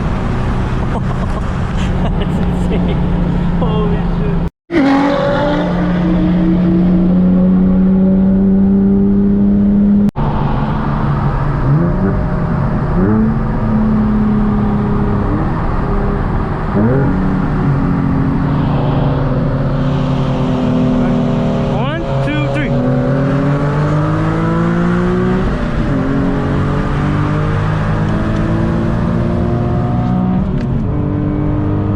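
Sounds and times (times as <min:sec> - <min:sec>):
sports car engine revving: 0:19.9 - 0:31.9.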